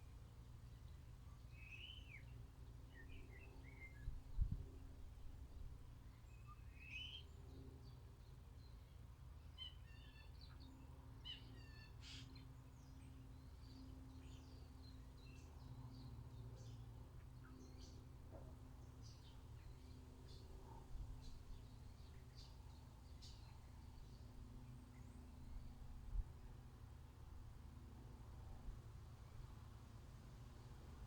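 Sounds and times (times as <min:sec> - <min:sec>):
songbirds chirping and trilling: 0:06.1 - 0:27.8.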